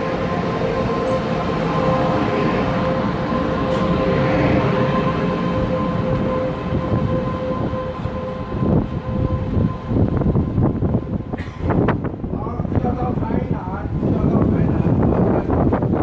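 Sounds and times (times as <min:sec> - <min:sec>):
high two-pitch whine: 0:00.0 - 0:12.2
train rumble: 0:00.0 - 0:16.0.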